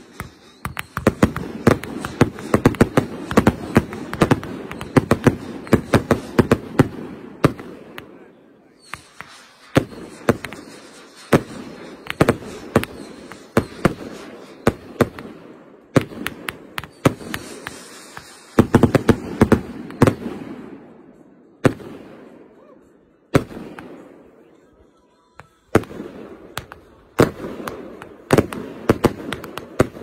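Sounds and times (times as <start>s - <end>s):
fireworks bangs: 0.0s - 21.0s, 21.6s - 22.4s, 23.3s - 24.3s, 25.4s - 30.0s.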